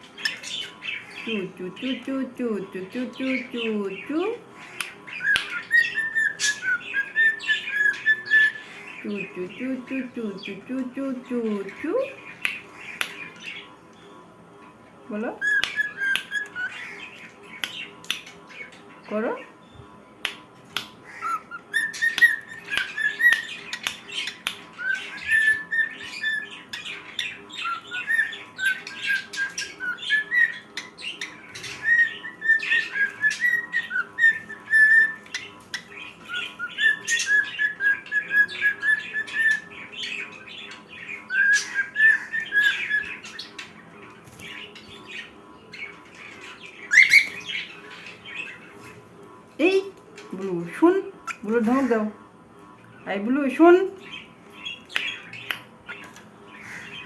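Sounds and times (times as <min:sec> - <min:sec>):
cockatiel whistling: 0:05.2 - 0:08.6, 0:15.4 - 0:16.7, 0:21.2 - 0:23.8, 0:24.8 - 0:26.5, 0:31.8 - 0:35.4, 0:36.3 - 0:39.7, 0:41.3 - 0:43.2.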